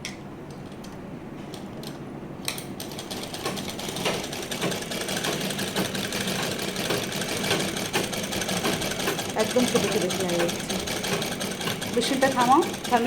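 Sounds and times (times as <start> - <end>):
sewing machine stitching: 2.8 - 13.0.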